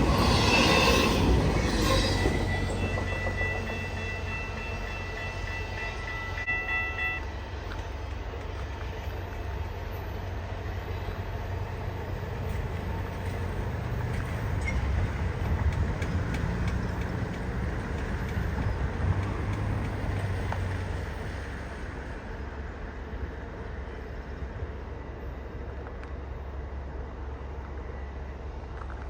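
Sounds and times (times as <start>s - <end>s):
train rumble: 0.0s - 29.0s.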